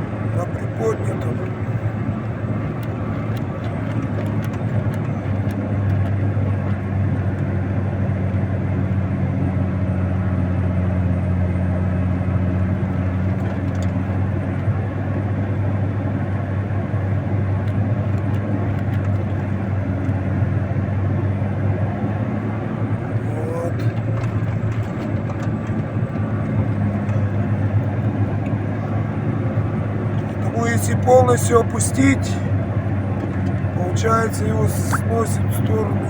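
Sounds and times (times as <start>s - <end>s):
snow-clearing machine engine: 0.0s - 36.0s.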